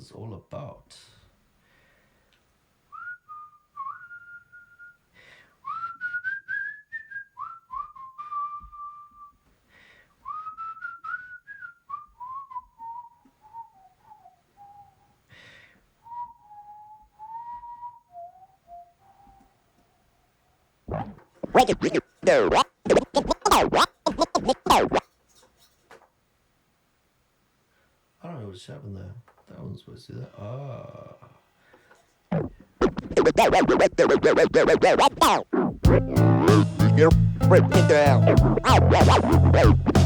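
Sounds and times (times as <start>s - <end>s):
person whistling a tune: 3.0s - 5.0s, 5.6s - 9.3s, 10.2s - 15.0s, 16.1s - 19.4s.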